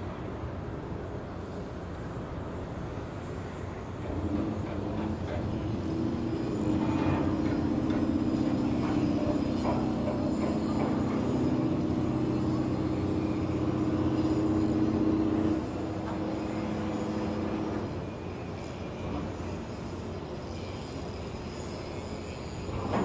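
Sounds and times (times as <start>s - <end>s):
heavy machinery drone: 0.0s - 23.0s
clanks and knocks: 6.7s - 11.9s.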